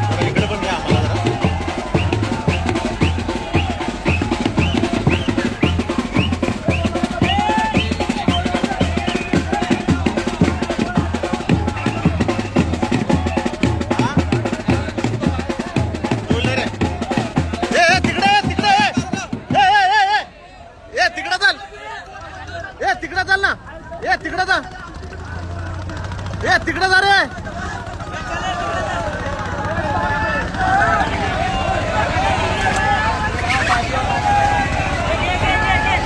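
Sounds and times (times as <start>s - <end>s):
high calls or whistles: 0.0s - 10.6s, 11.2s - 13.7s, 32.6s - 35.1s
fast drumming: 0.0s - 19.9s, 24.1s - 36.0s.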